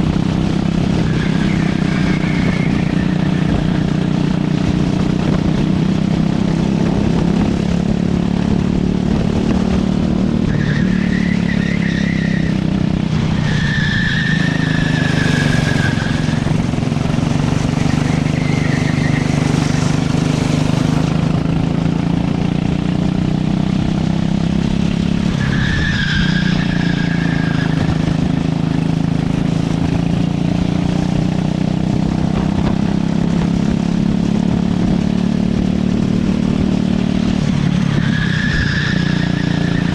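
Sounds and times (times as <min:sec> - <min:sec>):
kart engine running: 0:00.0 - 0:39.9
tyres squealing: 0:13.4 - 0:16.5, 0:17.7 - 0:21.0.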